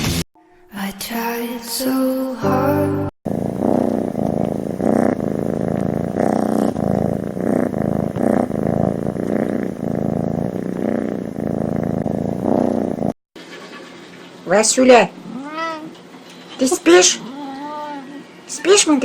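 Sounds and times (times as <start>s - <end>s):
cat purring loudly: 3.3s - 13.3s.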